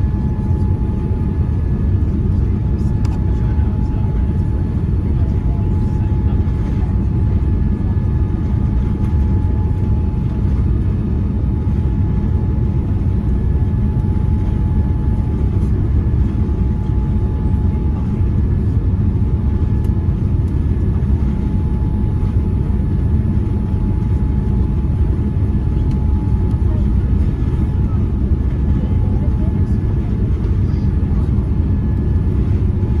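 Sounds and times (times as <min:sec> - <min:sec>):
airplane cabin rumble: 0:00.0 - 0:33.0.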